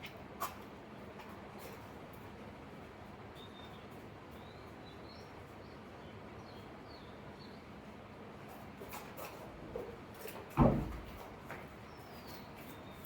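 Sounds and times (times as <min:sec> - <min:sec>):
steady background noise: 0:00.0 - 0:13.0
faint small birds chirping: 0:03.3 - 0:07.8.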